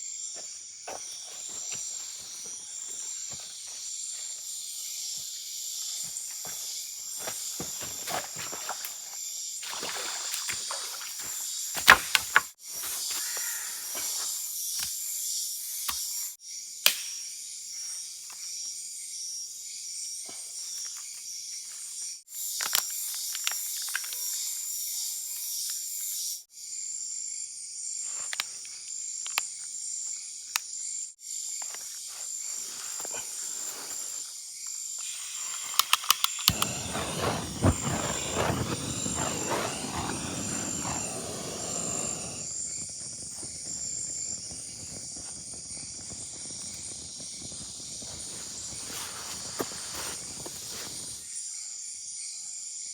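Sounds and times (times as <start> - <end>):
insects pulsing chorus: 0.0 - 11.7, 28.9 - 52.9.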